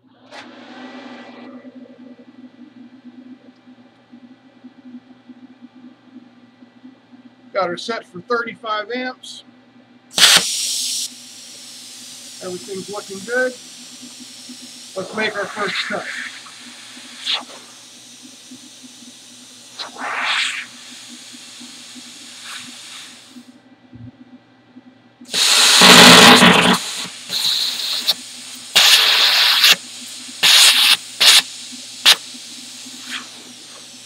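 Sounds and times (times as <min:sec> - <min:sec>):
plasma cutter hissing: 0:10.2 - 0:23.4, 0:25.3 - 0:34.0.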